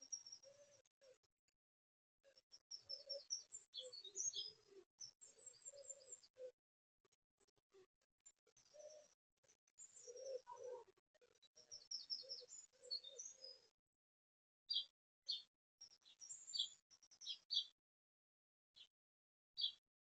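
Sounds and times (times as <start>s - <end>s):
small birds chirping: 0.0s - 1.3s, 2.3s - 6.6s, 8.2s - 13.8s, 14.7s - 17.8s, 19.6s - 19.8s
pigeon cooing: 10.0s - 10.9s.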